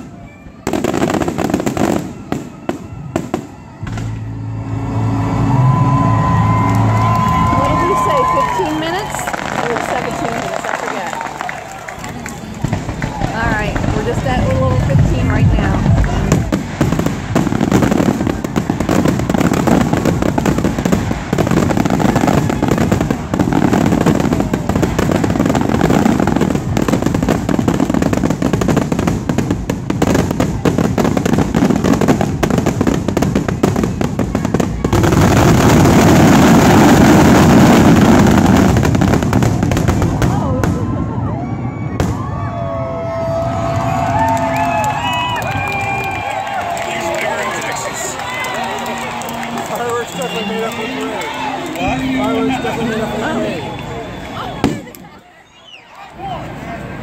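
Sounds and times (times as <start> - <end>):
fireworks barrage: 0.0 - 55.2
voices: 7.4 - 16.5, 46.5 - 57.0.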